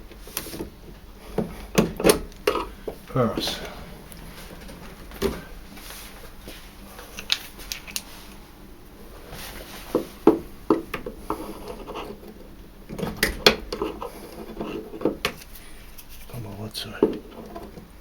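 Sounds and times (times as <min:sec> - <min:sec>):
knocks of plastic parts: 0:01.3 - 0:03.0.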